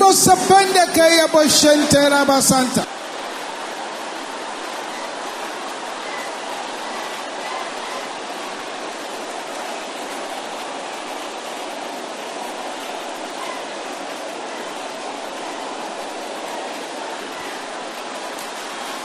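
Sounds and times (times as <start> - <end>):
congregation praying aloud: 0.0 - 3.0.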